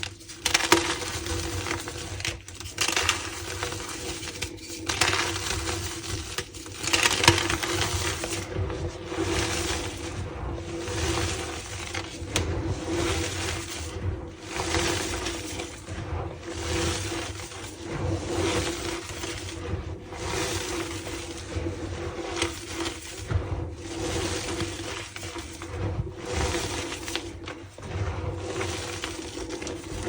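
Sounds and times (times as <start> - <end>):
chalk blocks crunching and crumbling: 0.0 - 8.5, 18.4 - 19.5.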